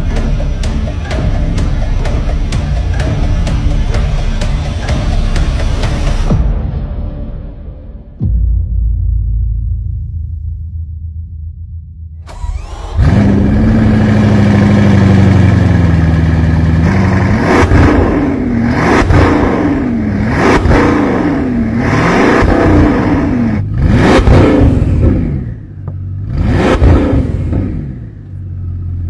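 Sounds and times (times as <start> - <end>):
car engine starting and idling: 0.0 - 6.4, 12.2 - 29.0
engine revving blips: 12.2 - 28.4.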